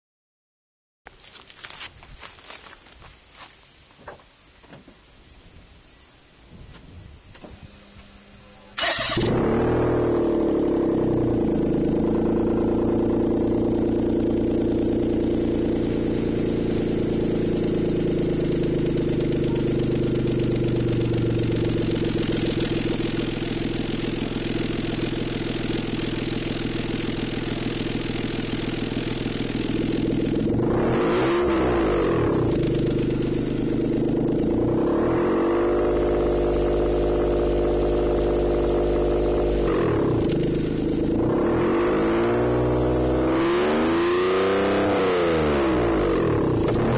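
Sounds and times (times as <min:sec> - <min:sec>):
car engine starting: 0:07.3 - 0:46.9
car engine idling: 0:07.4 - 0:43.4, 0:45.4 - 0:46.9
engine revving: 0:08.8 - 0:46.9.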